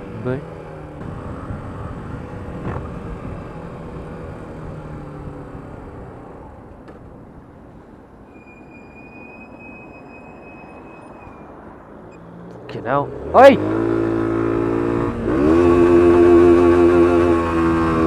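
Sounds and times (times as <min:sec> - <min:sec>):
road and wind noise: 0:00.0 - 0:18.0
high-pitched squeal: 0:08.3 - 0:12.2.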